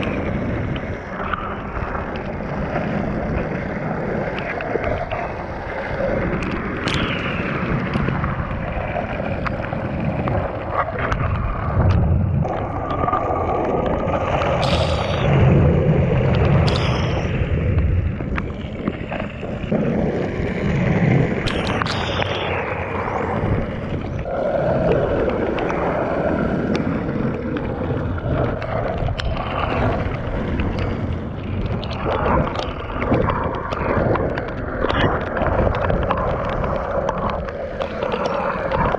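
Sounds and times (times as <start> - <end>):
longboard wheels rolling on wet pavement: 0.0 - 38.9
wind buffeting microphone: 0.0 - 38.9
sharp clicks: 6.4 - 8.1, 16.3 - 18.6, 21.4 - 23.2.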